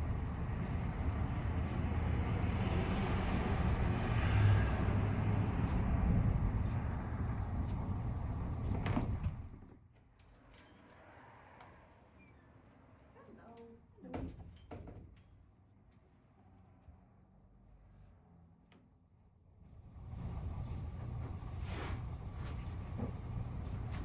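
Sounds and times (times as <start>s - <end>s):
low road rumble: 0.0s - 9.6s, 19.8s - 24.0s
vehicle passing: 0.3s - 8.7s.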